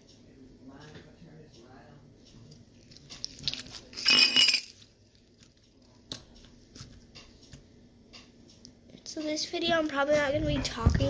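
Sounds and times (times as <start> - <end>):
small hard objects clinking: 3.2 - 4.9.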